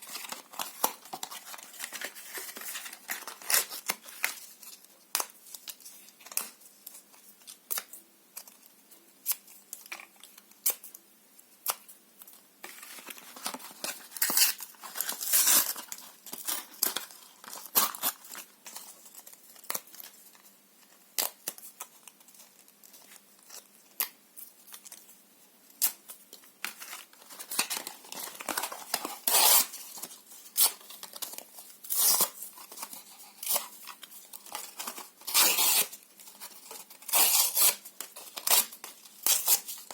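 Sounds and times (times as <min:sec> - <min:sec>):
paper tearing: 0:29.2 - 0:29.8, 0:35.2 - 0:35.9.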